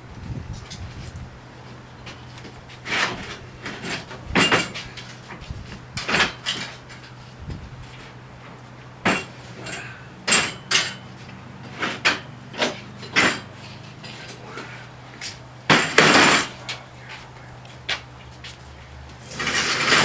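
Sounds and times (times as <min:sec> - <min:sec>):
metal scraping clatter: 0:02.8 - 0:16.9, 0:19.2 - 0:20.0
metal parts clanking: 0:06.0 - 0:07.2, 0:09.0 - 0:11.1, 0:11.7 - 0:14.7, 0:15.7 - 0:16.9, 0:19.2 - 0:20.0.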